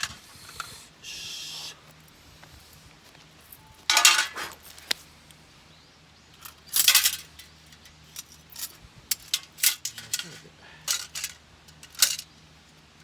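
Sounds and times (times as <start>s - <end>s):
small metal items clattering: 3.5s - 4.7s, 6.4s - 12.3s.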